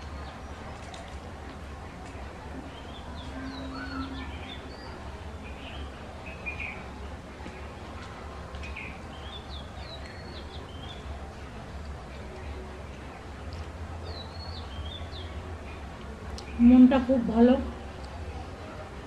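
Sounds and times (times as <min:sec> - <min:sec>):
steady low hum: 0:00.0 - 0:19.0
small birds chirping: 0:02.6 - 0:07.7, 0:08.6 - 0:11.3, 0:12.2 - 0:17.3.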